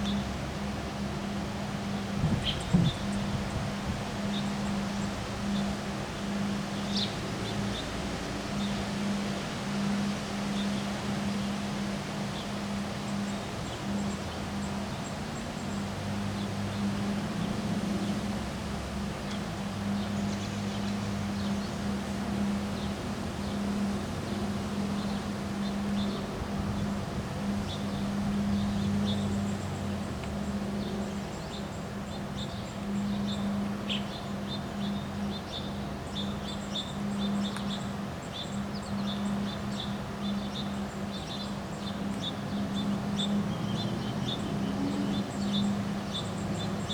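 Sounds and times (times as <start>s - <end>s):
small birds chirping: 27.4s - 46.9s.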